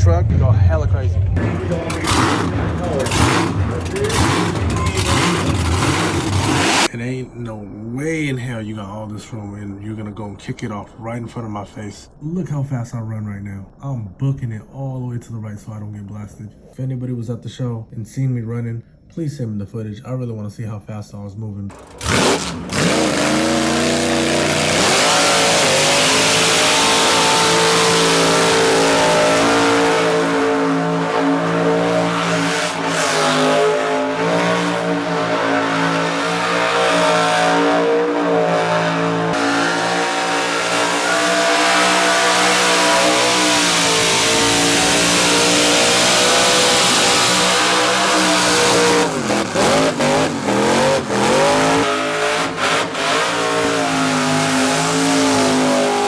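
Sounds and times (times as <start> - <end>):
spinning tyres hissing: 1.4 - 6.9, 21.7 - 56.0
truck engine revving: 1.4 - 6.9, 21.7 - 56.0.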